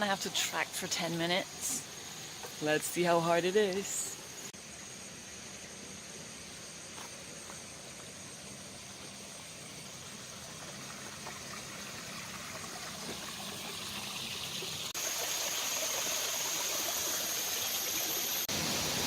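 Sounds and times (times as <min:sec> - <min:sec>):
river and waterfall rushing: 0:17.7 - 0:19.0.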